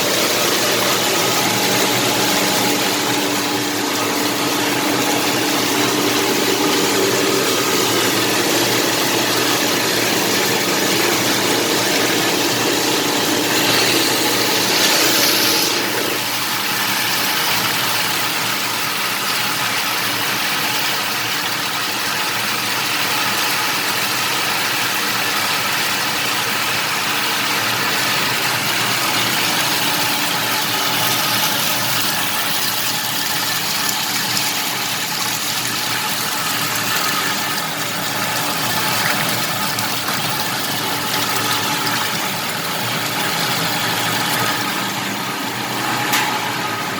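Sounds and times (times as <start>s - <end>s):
machine motor humming: 0.0s - 18.6s
rollers rubbing: 13.2s - 16.3s.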